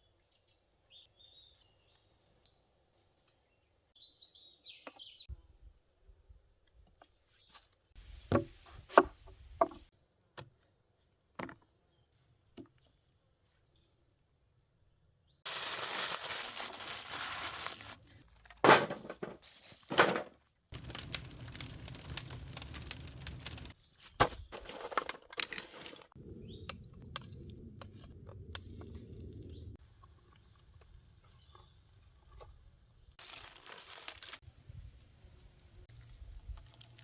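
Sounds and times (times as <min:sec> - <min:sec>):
dense rustling: 0:15.5 - 0:23.7
birds chirping: 0:26.2 - 0:26.9.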